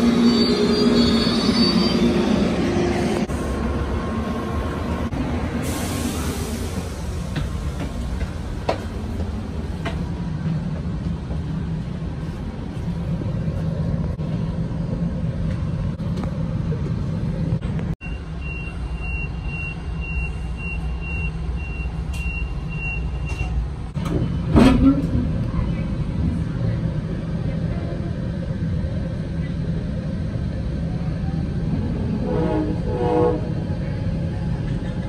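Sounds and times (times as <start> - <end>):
train rumble inside car: 6.4 - 18.0, 22.0 - 35.0.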